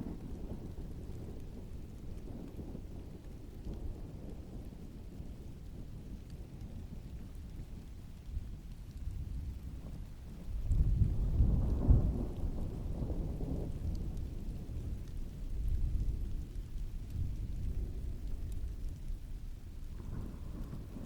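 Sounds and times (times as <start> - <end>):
heavy rain: 0.0 - 21.0
raindrop ticks: 0.0 - 21.0
distant thunder rumbling: 10.4 - 21.0.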